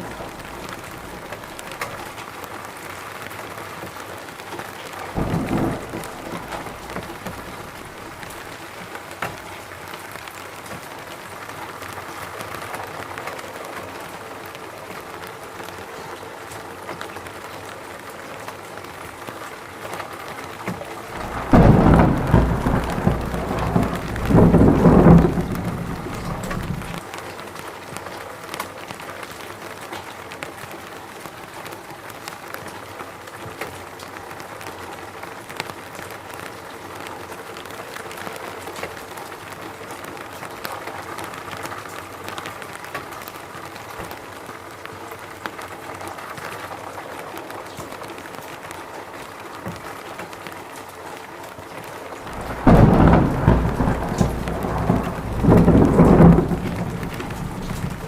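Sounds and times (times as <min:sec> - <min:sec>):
deep thunder rumbling: 0:00.0 - 0:02.2, 0:05.2 - 0:08.6, 0:21.0 - 0:27.0, 0:52.3 - 0:58.0
rain falling: 0:00.0 - 0:58.0.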